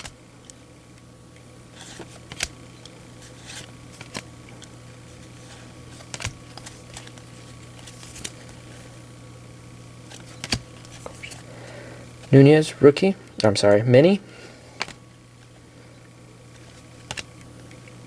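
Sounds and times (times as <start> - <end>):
cards clicking and rustling: 1.7 - 9.0, 10.0 - 12.4, 14.7 - 15.5, 16.5 - 18.0.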